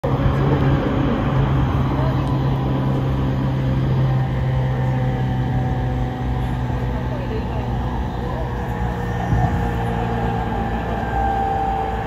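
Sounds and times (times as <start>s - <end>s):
train cabin low hum: 0.0s - 12.0s
wheels rumbling on rails: 0.0s - 12.0s.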